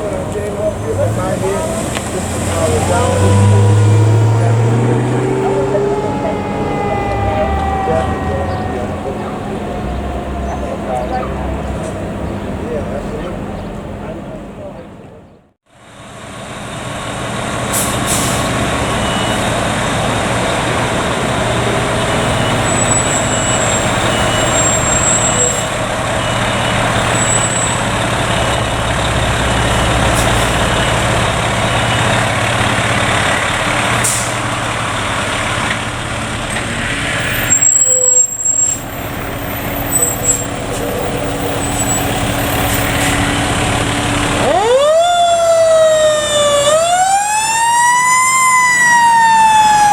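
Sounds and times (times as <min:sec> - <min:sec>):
fire truck engine running: 0:00.0 - 0:49.9
siren winding up: 0:03.0 - 0:10.5
air brake hiss: 0:17.7 - 0:18.6.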